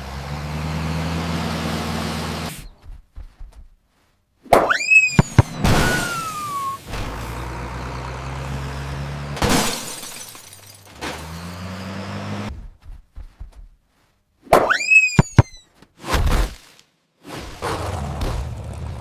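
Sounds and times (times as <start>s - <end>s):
sharp knocks: 4.5s - 5.9s
crash: 4.5s - 7.5s, 9.4s - 11.4s
falling whistle: 4.7s - 6.9s, 14.7s - 15.6s.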